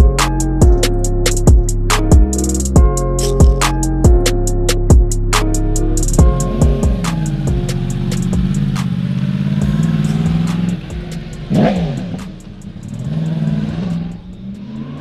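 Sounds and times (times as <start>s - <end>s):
faint music with a beat: 0.0s - 14.7s
motorcycle engine running: 4.9s - 15.0s.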